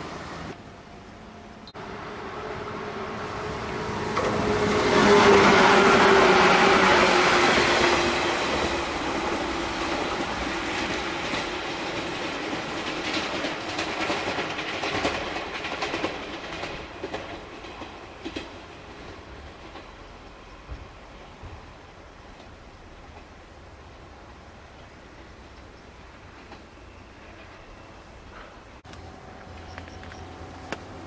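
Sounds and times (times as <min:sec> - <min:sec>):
electric train running: 0:01.8 - 0:19.8
wheel clacks over rail joints: 0:10.2 - 0:20.1.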